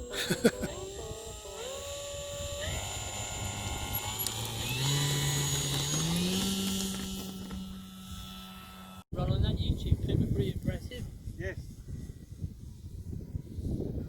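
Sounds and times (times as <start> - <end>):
model plane motor whine: 0.0 - 9.0.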